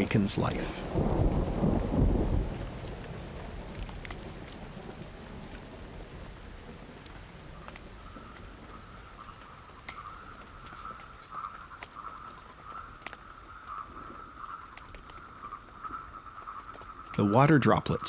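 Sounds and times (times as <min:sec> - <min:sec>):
frogs calling: 0:06.8 - 0:18.0
high insect tone: 0:07.2 - 0:18.0.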